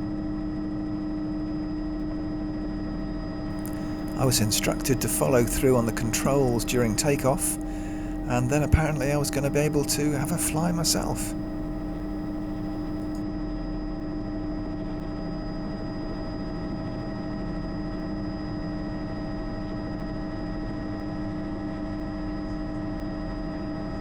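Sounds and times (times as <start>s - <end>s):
helicopter rotor hum: 3.6s - 13.2s
helicopter turbine whine: 3.6s - 13.2s.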